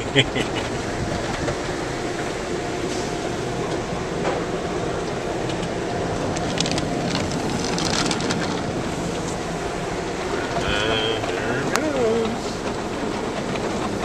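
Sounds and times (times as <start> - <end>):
car wash machinery rumble: 0.0 - 14.0.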